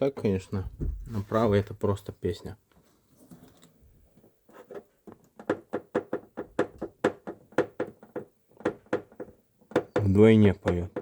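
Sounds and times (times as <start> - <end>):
drain tube knocking against body: 0.7 - 1.2.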